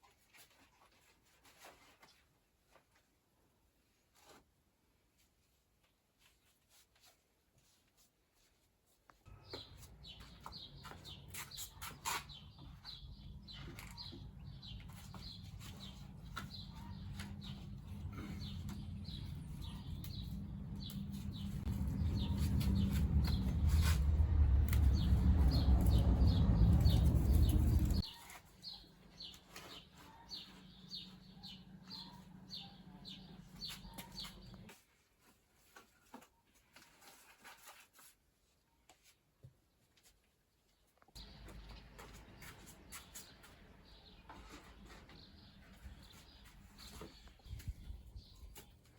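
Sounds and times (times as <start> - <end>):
birds chirping: 9.3 - 34.7, 41.2 - 48.9
steady low hum: 17.4 - 28.0.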